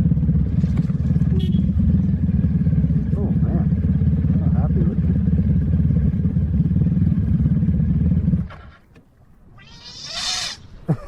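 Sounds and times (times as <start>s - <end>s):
low rapidly pulsing rumble: 0.0s - 8.5s
cat meowing: 9.6s - 10.6s.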